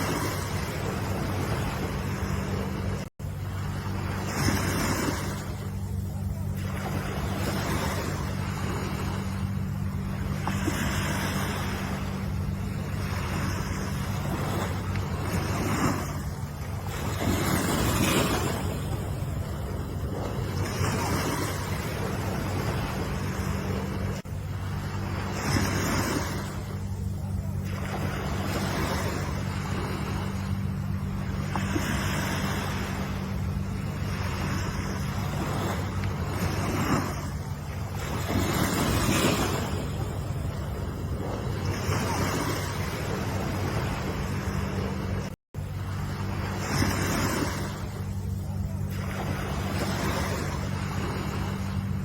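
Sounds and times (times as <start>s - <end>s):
low steady rumble: 0.0s - 52.0s
ocean waves breaking: 0.0s - 52.0s.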